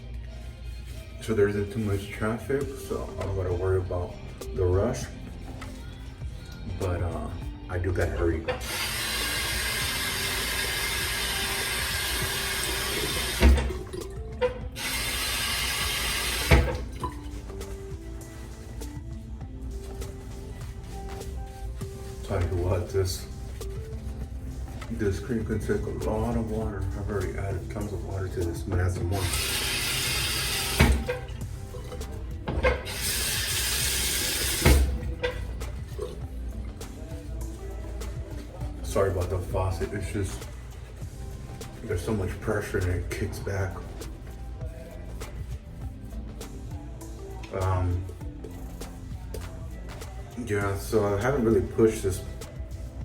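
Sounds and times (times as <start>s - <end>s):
faint background music: 0.0s - 53.0s
water splashing off sink: 8.6s - 14.2s, 14.8s - 17.2s, 29.2s - 32.0s, 32.6s - 35.4s
faucet running hard: 8.6s - 17.2s, 29.1s - 35.4s
faucet shut-off knock: 8.7s - 14.1s, 14.8s - 17.2s, 29.2s - 31.3s, 32.5s - 35.4s.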